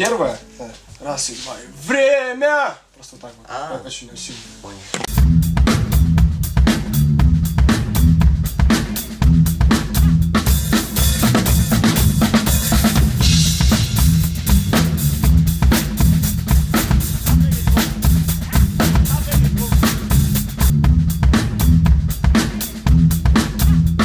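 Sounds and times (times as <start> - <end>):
bass drum and snare hits: 5.1 - 24.0
heavy bass line: 5.1 - 24.0
rock music: 5.1 - 24.0.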